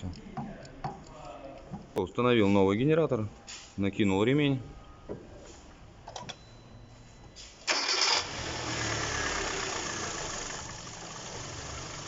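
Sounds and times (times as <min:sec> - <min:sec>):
car engine fast idle: 0:07.7 - 0:12.0
car engine starter cranking: 0:07.7 - 0:12.0.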